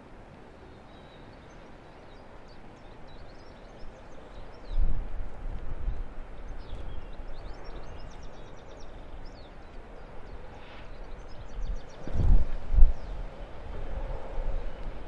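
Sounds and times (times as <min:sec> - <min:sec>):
small birds chirping: 0:00.6 - 0:04.9, 0:05.9 - 0:13.4.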